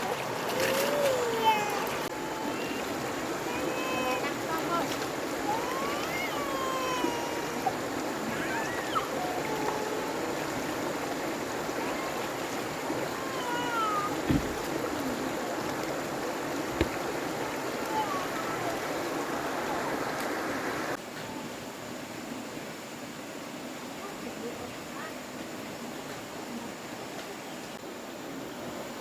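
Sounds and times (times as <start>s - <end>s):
running water: 0.0s - 29.0s
sharp knocks: 14.2s - 14.7s.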